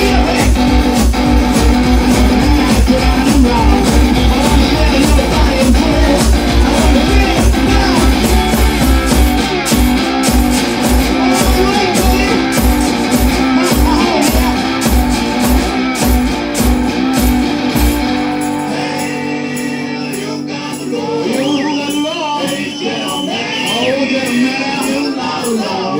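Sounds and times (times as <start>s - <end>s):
steady thumping beat: 0.0s - 18.6s
blues guitar music: 0.0s - 25.9s.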